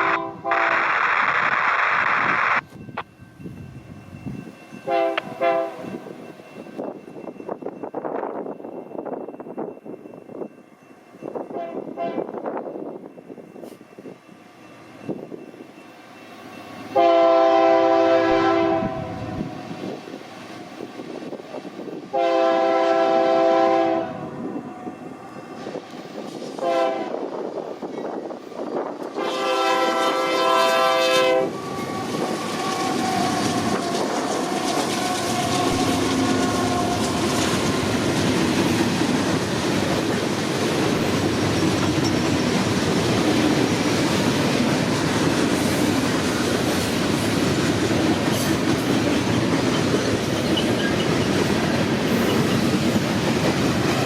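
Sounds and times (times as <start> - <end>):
locomotive air horn blasts: 0.0 - 0.9, 4.8 - 6.0, 11.5 - 12.4, 16.9 - 19.6, 22.1 - 24.6, 26.6 - 27.2, 29.1 - 34.1
train wheels clattering on rail: 25.5 - 54.0.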